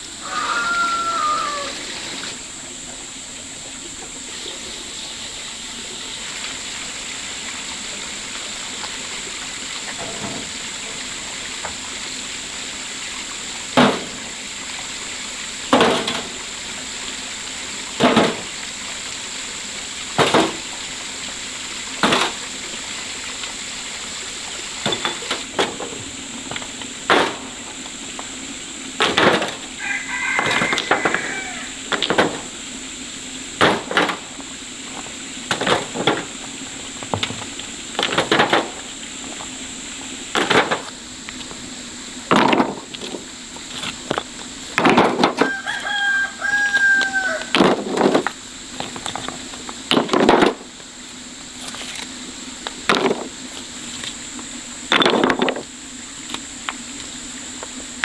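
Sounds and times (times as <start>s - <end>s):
rooster crowing: 0.1s - 2.1s, 29.8s - 31.8s, 45.3s - 47.6s.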